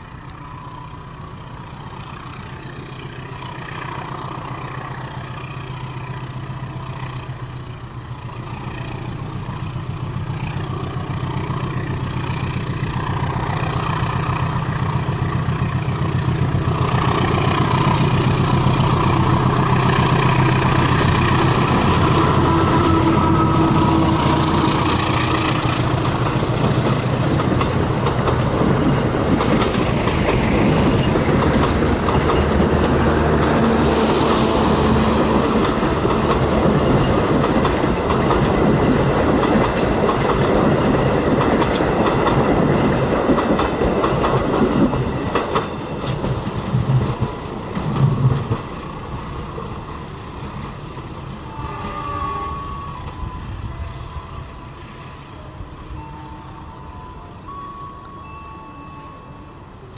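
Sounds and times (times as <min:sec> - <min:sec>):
train wheels clattering: 0:02.0 - 0:52.1
sharp knocks of train cars: 0:23.8 - 0:49.7.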